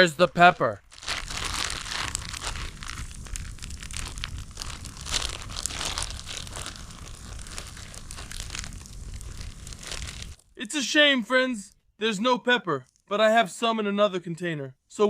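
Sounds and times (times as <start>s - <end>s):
plastic bags rustling: 0.0s - 10.5s.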